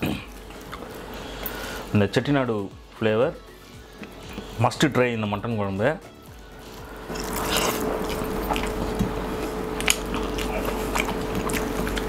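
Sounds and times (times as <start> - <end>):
faint steady hum: 0.0 - 12.0
wet chewing and smacking: 6.6 - 12.0.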